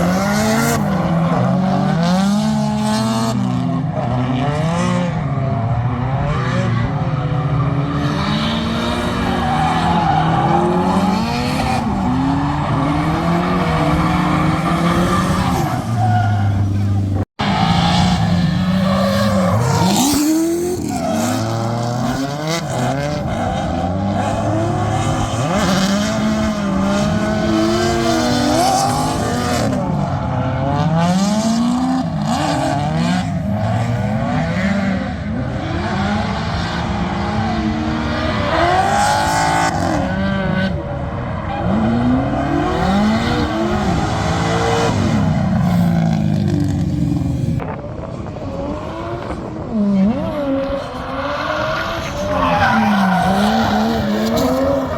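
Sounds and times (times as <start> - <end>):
car engine revving: 5.9 - 47.7.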